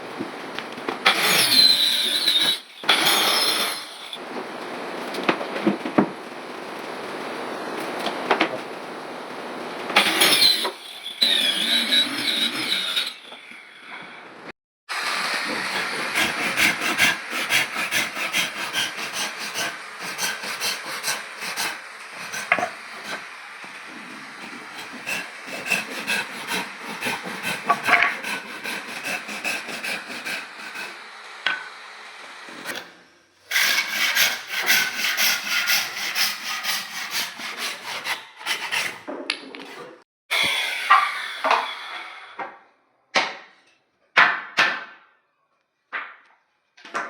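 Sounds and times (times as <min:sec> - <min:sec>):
hand tool sawing wood: 0:01.0 - 0:04.2, 0:09.9 - 0:14.0, 0:14.9 - 0:39.1, 0:39.7 - 0:42.4.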